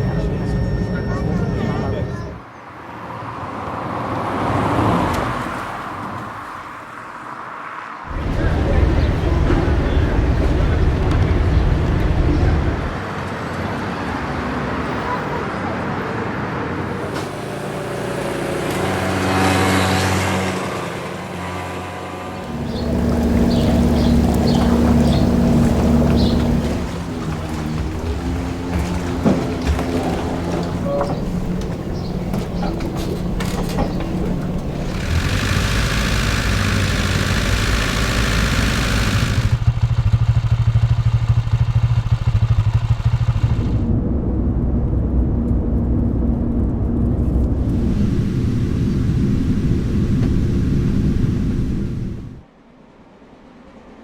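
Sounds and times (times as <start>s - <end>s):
loud steady engine drone: 0.0s - 2.4s, 8.1s - 13.0s, 20.0s - 52.4s
vehicle engine passing: 8.1s - 13.1s, 16.7s - 52.4s.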